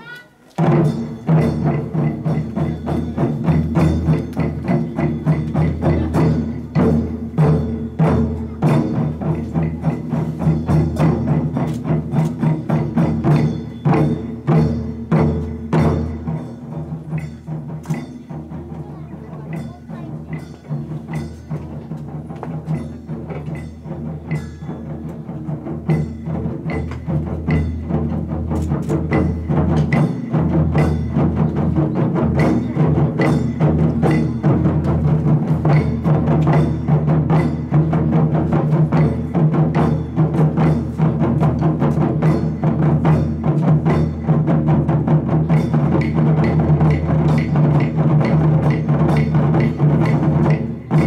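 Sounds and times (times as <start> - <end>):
taiko drums booming: 0.6 - 51.0.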